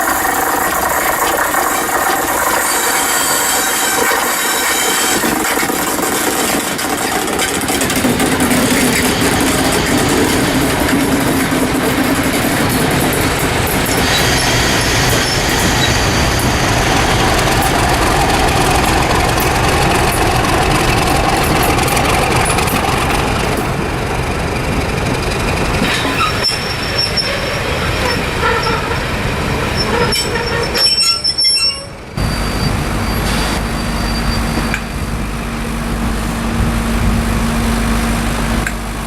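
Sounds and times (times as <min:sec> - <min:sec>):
train rolling into station: 0:00.0 - 0:39.0
wheel and brake squeal: 0:00.6 - 0:11.5, 0:12.2 - 0:23.1, 0:25.8 - 0:35.2.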